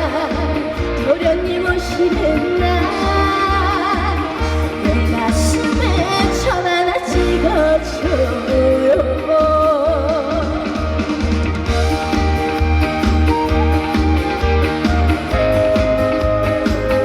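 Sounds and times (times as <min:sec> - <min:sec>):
woman singing with vibrato: 0:00.0 - 0:11.0
backing track with bass beat: 0:00.0 - 0:17.0.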